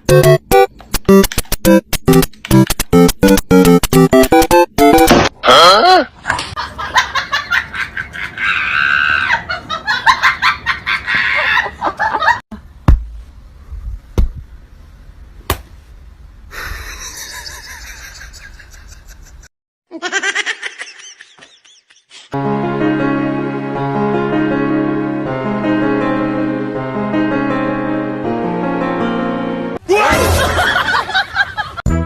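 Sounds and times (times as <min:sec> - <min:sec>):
person laughing hard: 0:05.4 - 0:12.4, 0:16.6 - 0:22.3
sharp knocks: 0:12.9 - 0:13.2.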